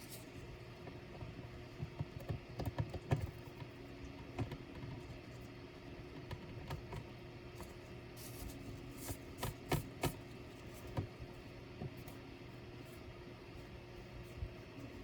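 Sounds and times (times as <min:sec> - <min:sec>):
faint steady hum: 0:00.0 - 0:15.0
clicks and taps on laptop: 0:00.8 - 0:05.0.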